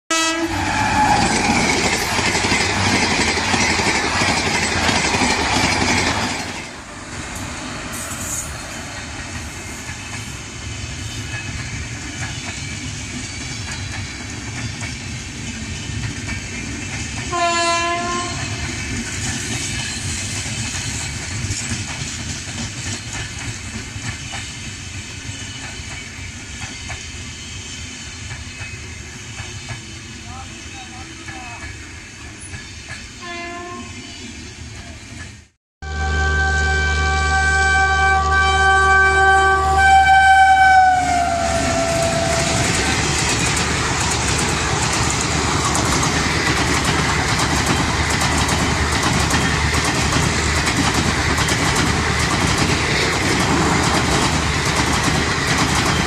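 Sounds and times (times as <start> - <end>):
train horn: 0.1 - 1.5, 17.3 - 18.6, 33.2 - 34.2, 35.8 - 42.8
train rumbling and clattering past: 0.1 - 35.6, 36.4 - 56.0.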